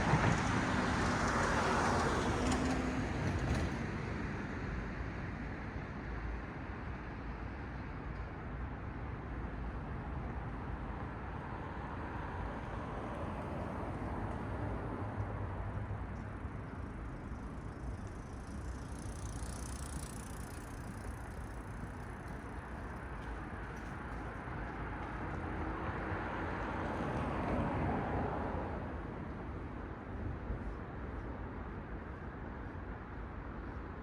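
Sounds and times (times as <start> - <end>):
cars passing on road: 0.0 - 34.0.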